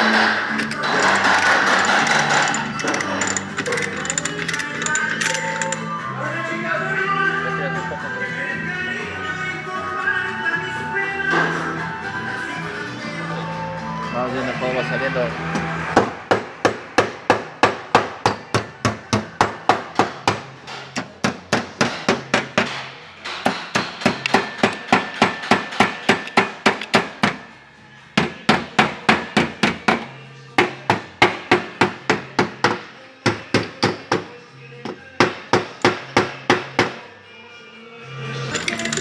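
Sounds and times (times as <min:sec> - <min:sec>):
hammer tapping on sheet metal: 0:16.0 - 0:27.4.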